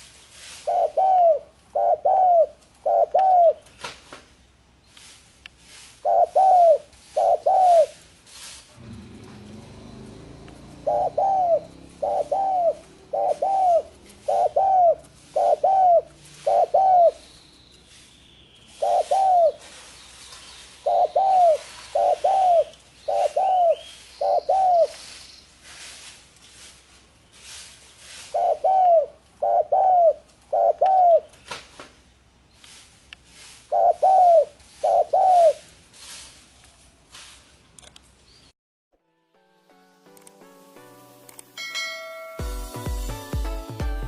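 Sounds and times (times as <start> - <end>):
dove cooing: 0.6 - 3.6, 6.0 - 8.0, 8.8 - 17.3, 18.7 - 19.7, 20.8 - 25.0, 28.3 - 31.3, 33.7 - 35.7.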